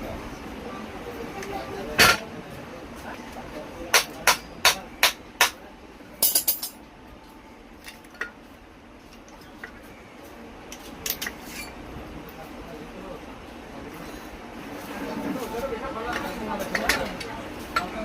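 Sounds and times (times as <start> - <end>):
metal clinks and taps: 6.2 - 6.8.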